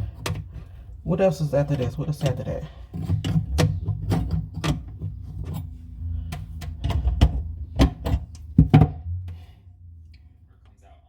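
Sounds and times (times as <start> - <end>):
low rumble: 2.7 - 11.0.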